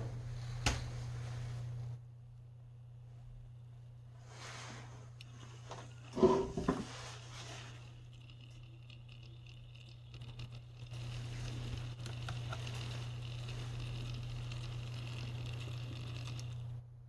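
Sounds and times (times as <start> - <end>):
exhaust fan motor hum: 0.0 - 17.0.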